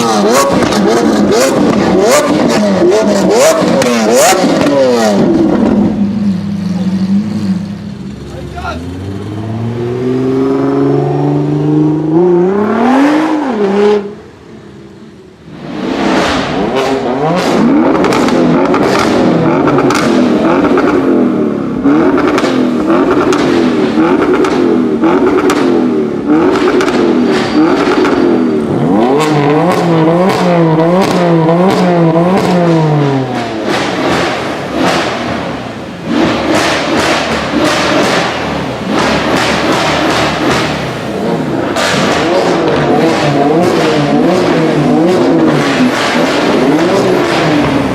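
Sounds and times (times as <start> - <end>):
car engine revving hard: 0.0 - 6.0, 8.8 - 14.2, 15.5 - 47.9
sharp cracks: 36.1 - 44.6.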